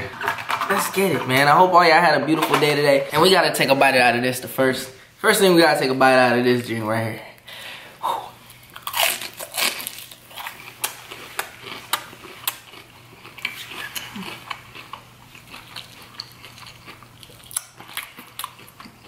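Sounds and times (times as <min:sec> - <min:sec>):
crunchy chewing: 0:08.5 - 0:19.0.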